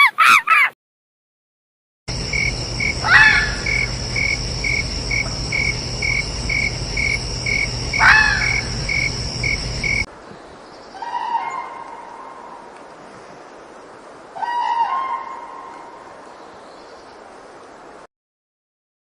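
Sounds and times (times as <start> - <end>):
rising and falling animal call: 0.0 - 0.8, 2.2 - 10.1
insects chirping and droning: 2.1 - 10.1.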